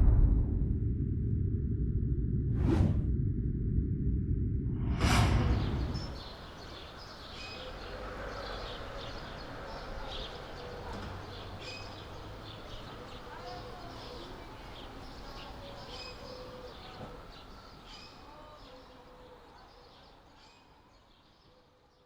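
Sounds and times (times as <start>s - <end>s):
whoosh: 0.0s - 3.9s, 4.5s - 6.5s
low rumble: 0.0s - 6.6s
faint outdoor background: 0.0s - 22.0s
birds chirping: 5.3s - 21.5s.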